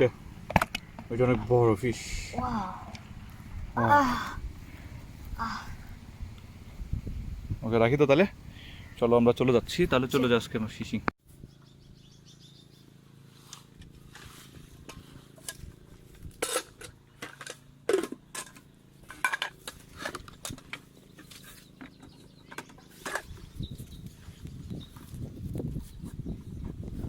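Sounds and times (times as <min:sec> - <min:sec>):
faint low hum: 0:00.0 - 0:11.1.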